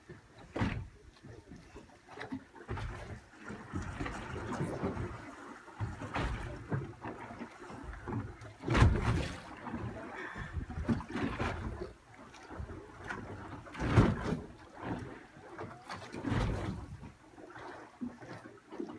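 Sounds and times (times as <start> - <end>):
water splashing against boat: 0.0 - 18.9
loud splash or thump: 8.7 - 9.4.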